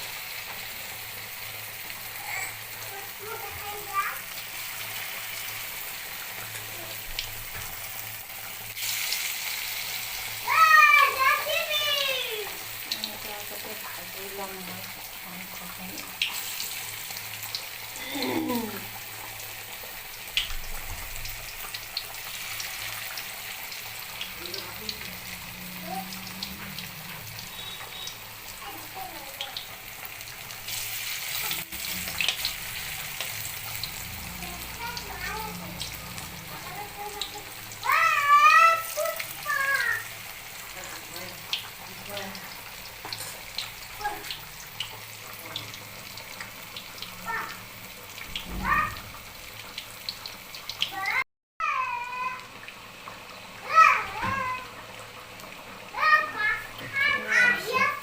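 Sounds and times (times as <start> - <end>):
chicken frying in hot oil: 0.0 - 58.0
oil crackles and pops: 14.7 - 25.1, 25.8 - 40.9, 41.5 - 58.0.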